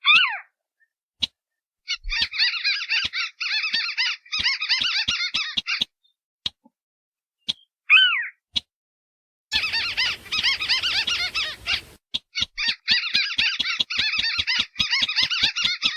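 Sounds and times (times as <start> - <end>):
fast chattering bird calls: 1.9 - 5.9, 9.5 - 15.9
downslurred bird call: 9.5 - 12.0.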